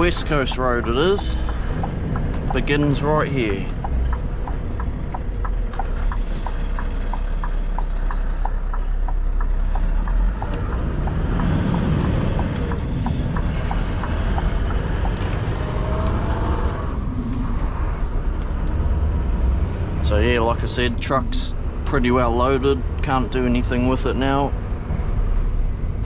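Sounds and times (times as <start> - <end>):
indicator ticking: 0.0 - 16.5
truck engine running: 0.0 - 26.0.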